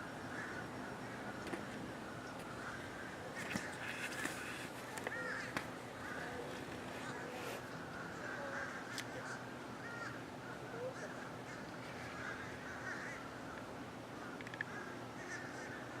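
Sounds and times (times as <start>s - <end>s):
flock of birds calling: 0.0s - 16.0s
sharp clicks: 14.4s - 14.7s.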